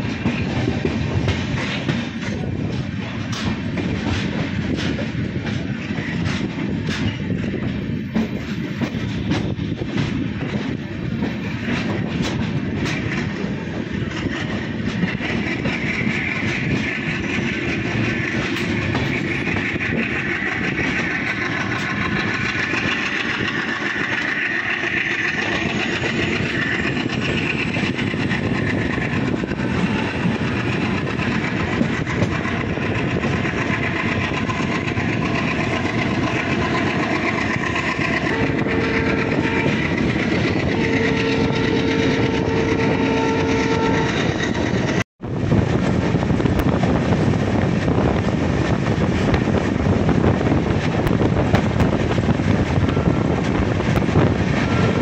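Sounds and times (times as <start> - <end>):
train rolling on track: 0.0 - 55.0
steady horn-like tone: 38.2 - 40.0, 40.6 - 44.4.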